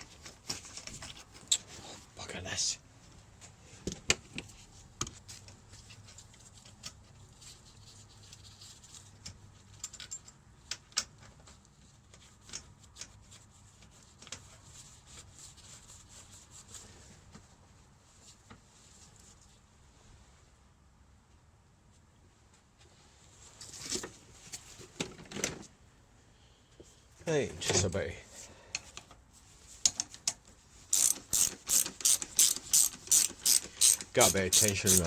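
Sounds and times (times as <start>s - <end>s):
metal parts clicking and knocking: 9.2s - 11.3s, 29.8s - 35.0s.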